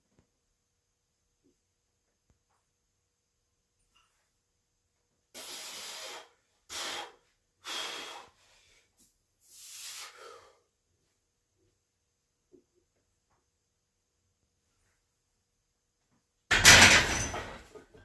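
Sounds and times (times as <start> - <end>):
man breathing hard: 5.4 - 10.7.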